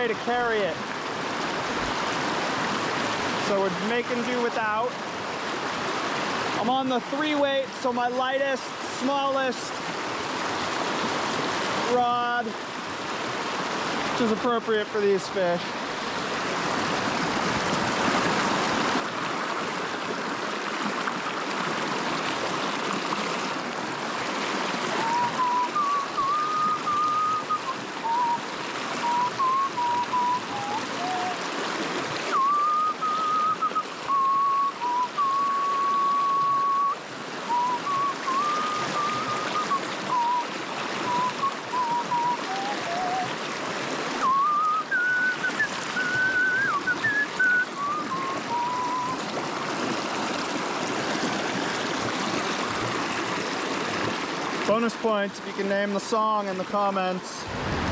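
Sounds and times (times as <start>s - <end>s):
rushing creek water: 0.0s - 57.9s
person whistling a tune: 25.0s - 31.4s, 32.3s - 43.3s, 44.2s - 49.2s.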